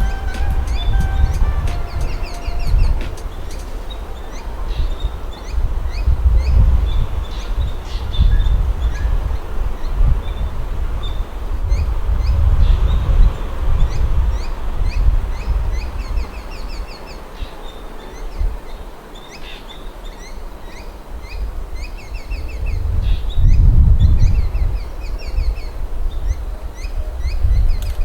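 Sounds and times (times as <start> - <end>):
birds calling with falling notes: 0.0 - 10.4.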